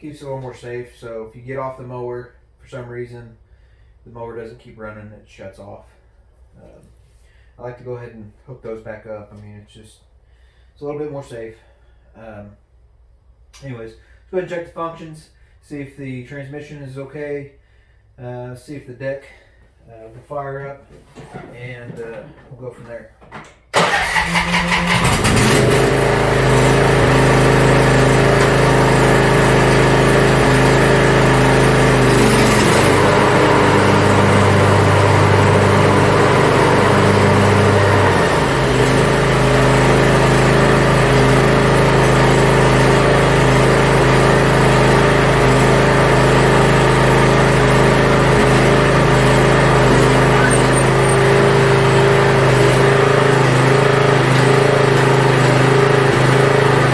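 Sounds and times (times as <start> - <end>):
riding mower engine running: 23.7 - 56.9.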